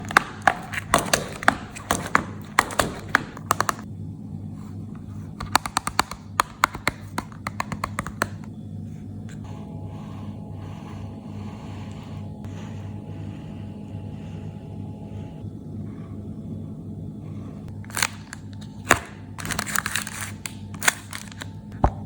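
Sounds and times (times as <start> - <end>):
steady low hum: 0.0 - 22.0
packaging crackling and clicking: 17.7 - 22.0.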